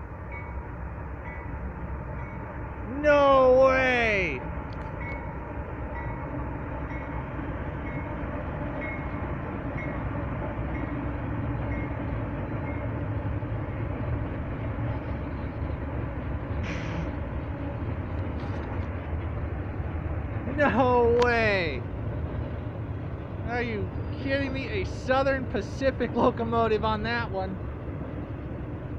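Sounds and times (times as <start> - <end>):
freight train rumbling past: 0.0 - 28.9.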